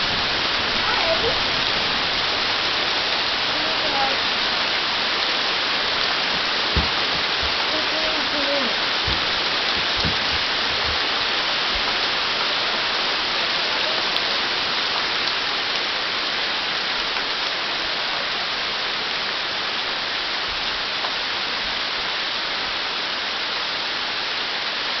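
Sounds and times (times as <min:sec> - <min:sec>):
rain and hail pelting down: 0:00.0 - 0:25.0
low bumps: 0:04.7 - 0:12.3.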